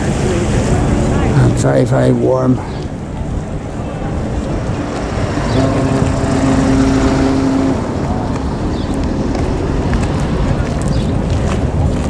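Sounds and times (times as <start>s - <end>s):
traffic rumble: 0.0s - 12.0s
vehicle engine passing: 2.9s - 12.0s.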